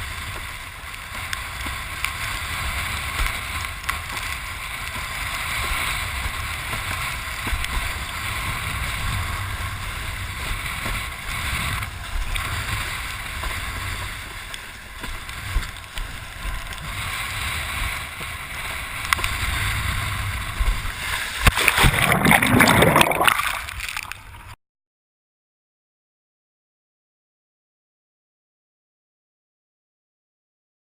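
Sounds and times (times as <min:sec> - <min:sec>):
water rushing past board: 0:00.1 - 0:24.6.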